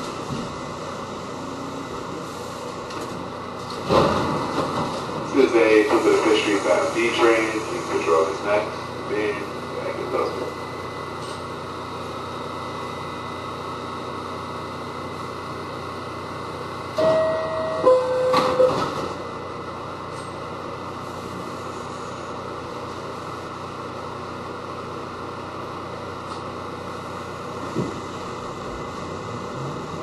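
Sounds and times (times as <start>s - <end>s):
subway car hum: 0.0s - 30.0s
two-note descending chime: 17.0s - 19.0s.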